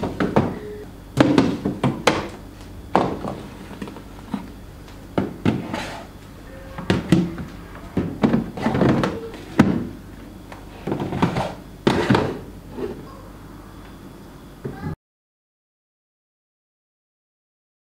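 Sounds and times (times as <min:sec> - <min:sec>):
items thudding and clattering: 0:00.0 - 0:04.5, 0:05.1 - 0:06.0, 0:06.7 - 0:10.0, 0:10.6 - 0:13.0.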